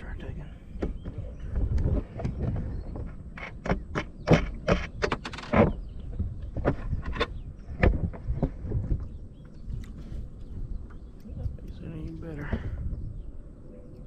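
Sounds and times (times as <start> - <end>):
sharp knocks and clicks: 0.8 - 9.6.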